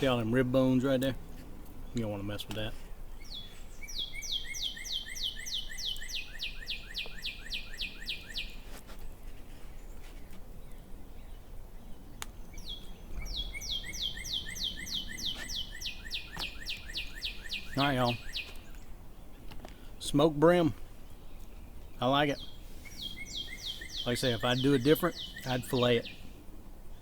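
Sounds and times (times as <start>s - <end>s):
songbird trilling: 1.8s - 8.6s, 10.6s - 26.4s.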